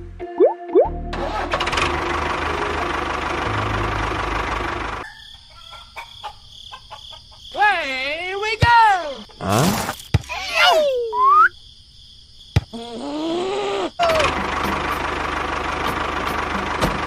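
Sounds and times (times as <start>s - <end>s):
engine running: 1.1s - 5.1s, 14.0s - 17.0s.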